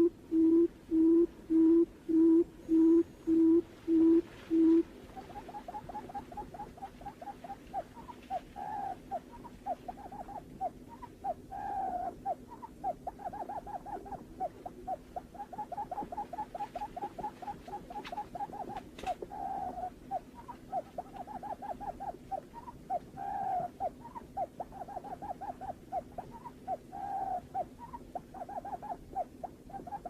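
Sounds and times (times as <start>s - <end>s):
bird hooting call: 0.0s - 30.0s
faint steady hum: 0.0s - 30.0s.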